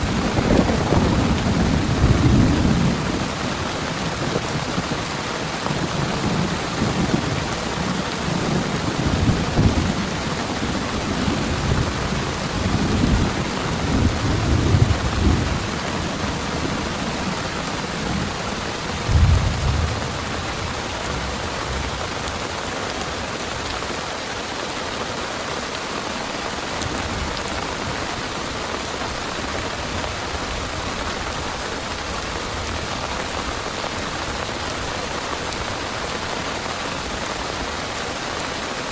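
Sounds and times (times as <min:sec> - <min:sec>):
thunder rumbling: 0:00.0 - 0:05.1, 0:05.7 - 0:22.4
heavy rain pouring: 0:00.0 - 0:38.9
thunder crack: 0:19.0 - 0:21.5.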